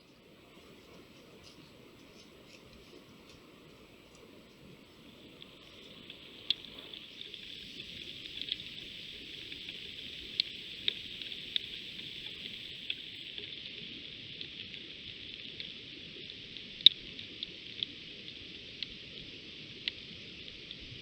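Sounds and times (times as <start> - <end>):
faint high electronic whine: 0.0 - 14.7
rain hissing: 0.2 - 13.4.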